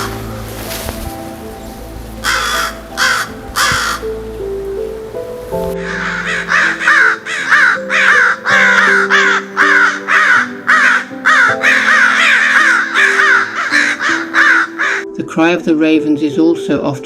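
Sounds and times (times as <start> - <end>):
music with slow low notes: 0.0 - 17.0
crows cawing: 2.2 - 4.2, 5.8 - 15.1.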